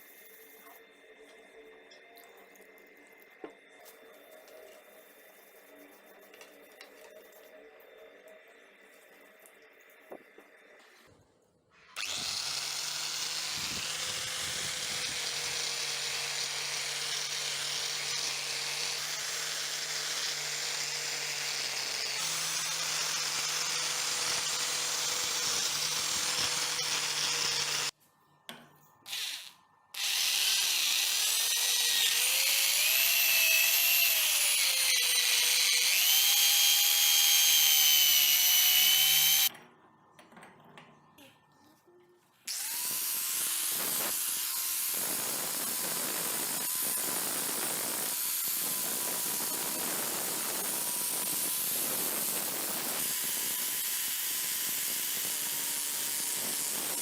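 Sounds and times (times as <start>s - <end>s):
electric power tool whining: 12.0s - 28.0s, 29.1s - 39.5s, 42.5s - 57.0s.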